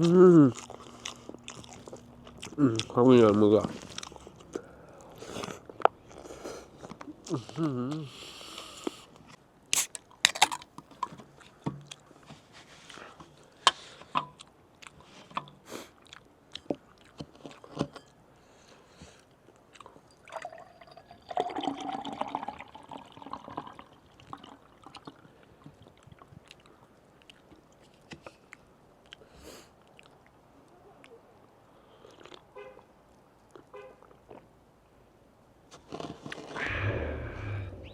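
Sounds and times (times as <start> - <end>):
slurping: 0.0 - 10.0, 35.9 - 37.9
wet chewing: 0.0 - 20.2, 24.2 - 30.4, 31.9 - 32.5.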